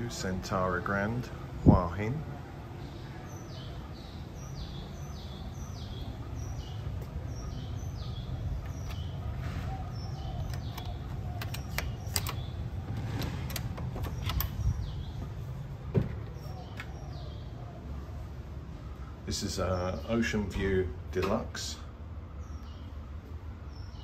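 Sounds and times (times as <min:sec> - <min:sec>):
steady low rumble: 0:00.8 - 0:19.4
door unlocking clicks and knocks: 0:10.3 - 0:14.7.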